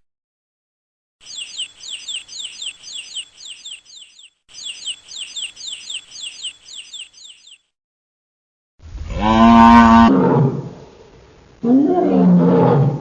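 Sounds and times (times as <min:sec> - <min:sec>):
songbird chirping: 0:01.2 - 0:07.7
cow mooing: 0:09.1 - 0:10.6.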